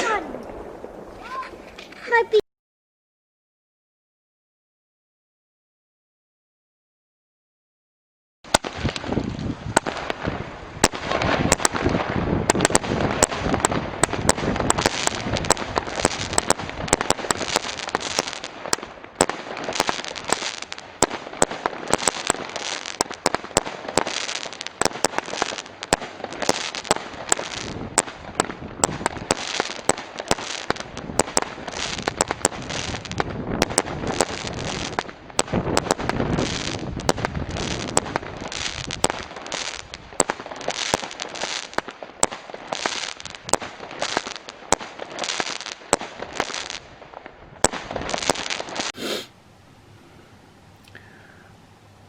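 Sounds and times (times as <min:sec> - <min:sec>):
firework crackling: 0:00.0 - 0:02.4, 0:08.5 - 0:49.4
fireworks barrage: 0:00.0 - 0:02.4, 0:08.5 - 0:49.4.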